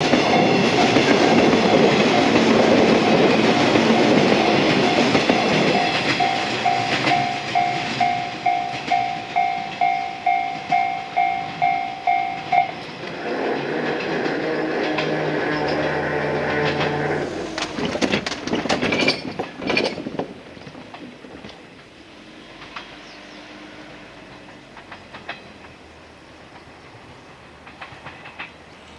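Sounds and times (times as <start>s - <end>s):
electric train rail noise: 0.0s - 28.9s
electronic bell ringing: 0.2s - 12.9s.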